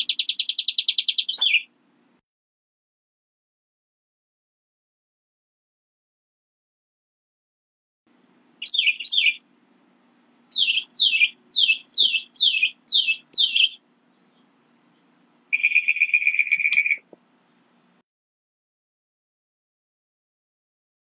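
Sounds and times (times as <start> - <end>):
songbird singing: 0.0 - 1.8, 8.2 - 18.0.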